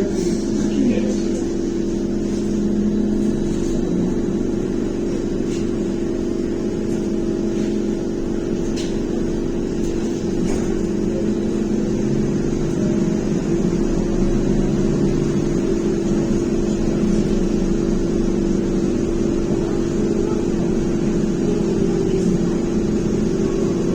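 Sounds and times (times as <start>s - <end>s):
running noise of ride: 0.0s - 23.9s
trolleybus electric hum: 0.0s - 23.9s.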